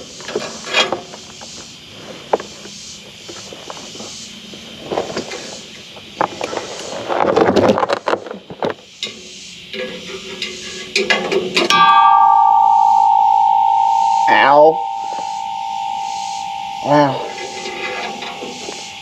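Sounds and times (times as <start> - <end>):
twine rustling and scraping: 14.9 - 19.0.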